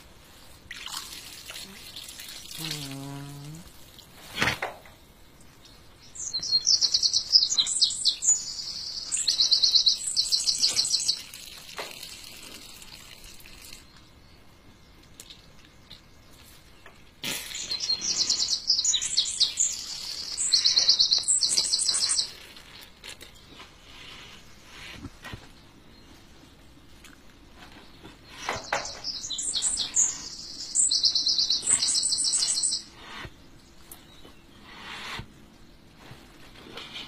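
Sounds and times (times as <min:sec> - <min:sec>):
songbird trilling: 0:28.7 - 0:33.0.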